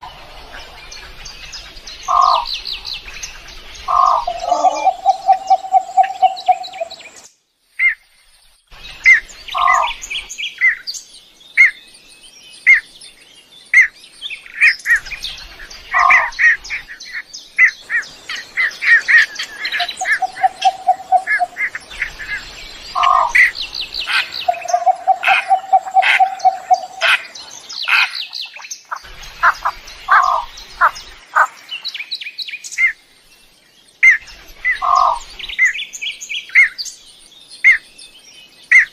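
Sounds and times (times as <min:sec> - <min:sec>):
low rapid bird trill: 0:00.0 - 0:07.2, 0:15.0 - 0:33.0, 0:34.0 - 0:36.8
birds chirping: 0:00.0 - 0:38.9.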